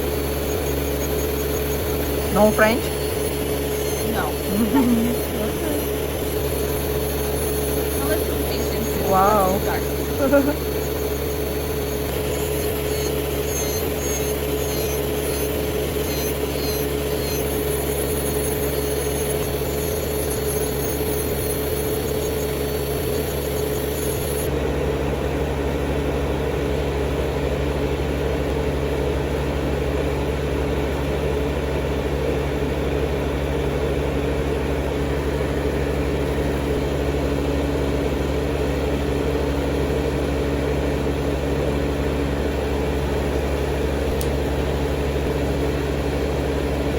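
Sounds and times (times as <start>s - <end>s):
electric nail drill whining: 0.0s - 24.6s.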